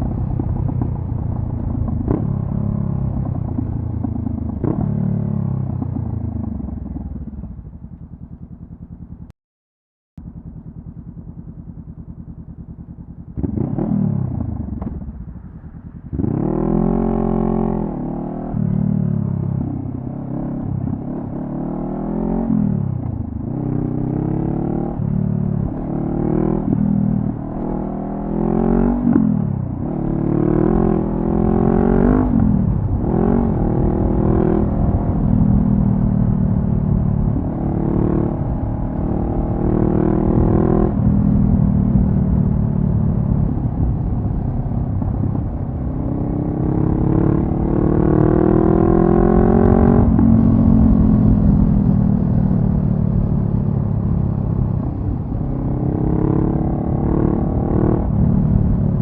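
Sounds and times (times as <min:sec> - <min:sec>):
motorcycle engine accelerating: 0:00.0 - 0:09.3, 0:10.2 - 0:59.0.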